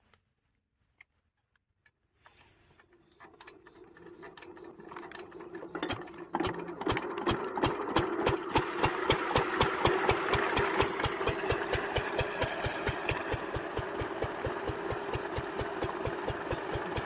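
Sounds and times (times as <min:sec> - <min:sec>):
engine cranking clicking and whirring: 0:02.2 - 0:17.0
diesel engine running with knocks: 0:03.9 - 0:17.0.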